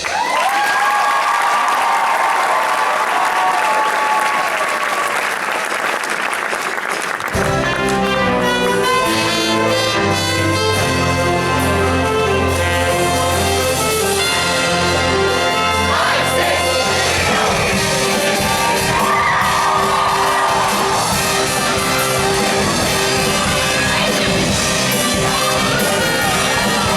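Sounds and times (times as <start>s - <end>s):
audience applause: 0.0s - 8.1s, 15.9s - 24.9s
band with brass and bass: 7.2s - 26.9s.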